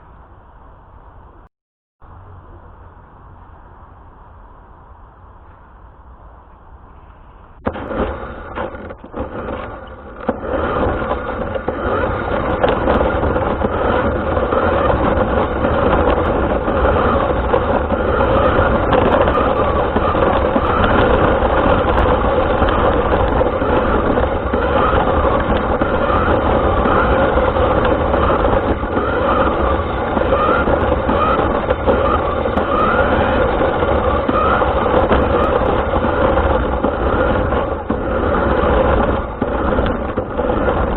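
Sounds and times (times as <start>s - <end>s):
toy car motor running: 7.7s - 40.9s.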